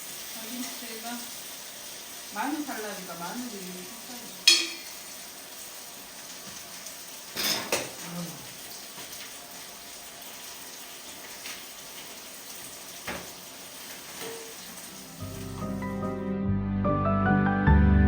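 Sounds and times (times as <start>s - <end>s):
meat sizzling: 0.0s - 16.2s
utensils clinking: 4.4s - 5.0s.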